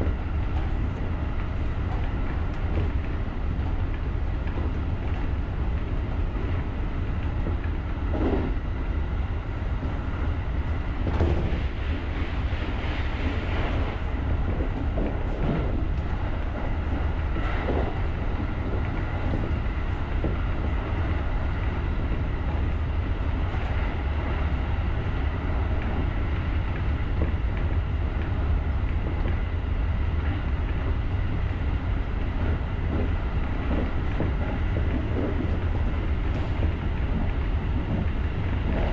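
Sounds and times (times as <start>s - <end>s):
electric train rumble: 0.0s - 38.9s
soft knocks from track: 7.2s - 8.6s, 11.0s - 11.8s, 14.4s - 20.8s.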